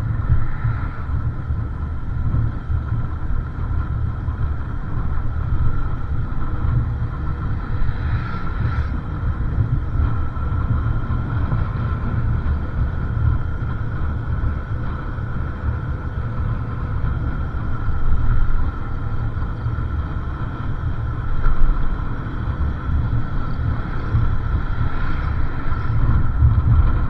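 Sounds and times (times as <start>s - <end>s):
wind rumbling on microphone: 0.0s - 27.0s.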